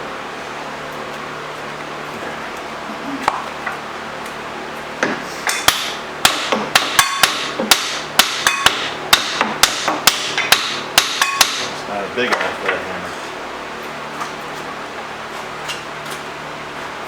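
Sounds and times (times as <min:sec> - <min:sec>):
hammer striking metal: 0:05.5 - 0:11.8.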